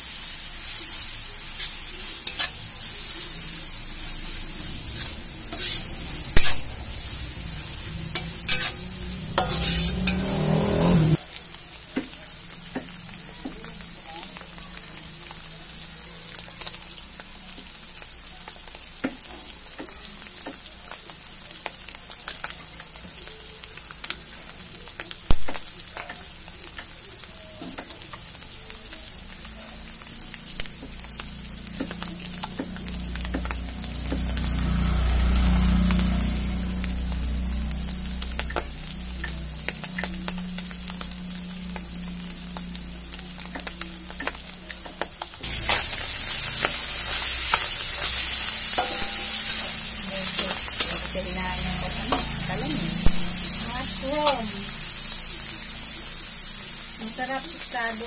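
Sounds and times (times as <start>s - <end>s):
meat sizzling in hot oil: 0.0s - 58.0s
metal spatula scraping pan: 4.9s - 6.7s, 8.1s - 11.2s, 45.5s - 52.4s.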